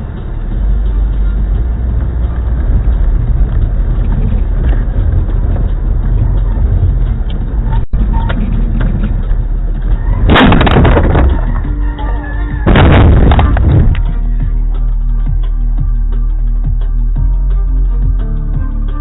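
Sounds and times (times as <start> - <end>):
car road and engine rumble: 0.0 - 19.0
loud harsh crash: 10.2 - 11.6, 12.6 - 13.9.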